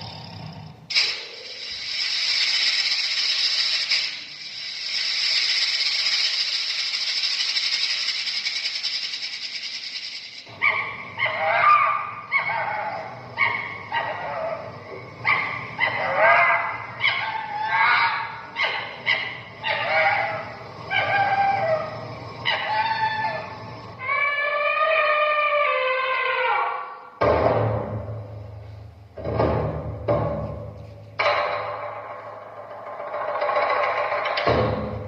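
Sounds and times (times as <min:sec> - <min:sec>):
steady hiss: 0:00.0 - 0:10.6
dog barking and yelping: 0:10.5 - 0:23.4.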